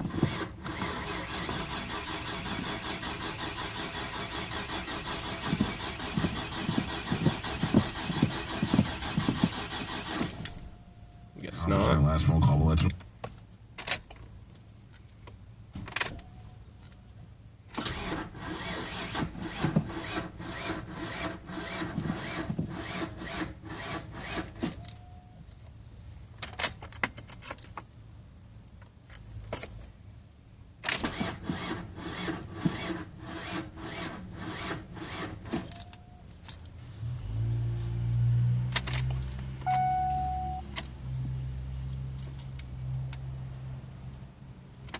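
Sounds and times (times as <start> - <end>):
car starter cranking engine: 0.0 - 10.7, 17.7 - 24.8, 30.8 - 36.0.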